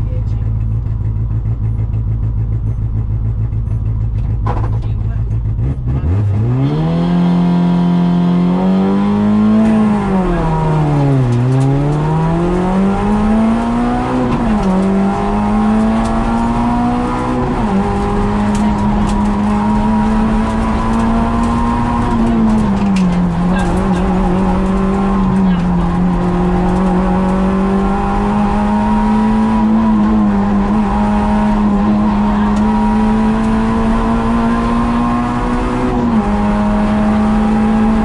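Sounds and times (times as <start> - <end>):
rally car engine revving high: 0.0 - 38.0
road and tyre noise: 0.0 - 38.0.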